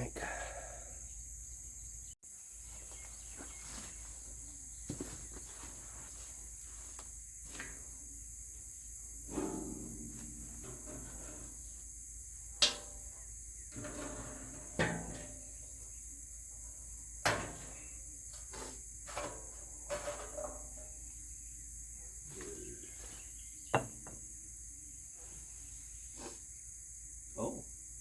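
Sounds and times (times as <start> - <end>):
metal knocks and clanks: 9.3 - 11.6.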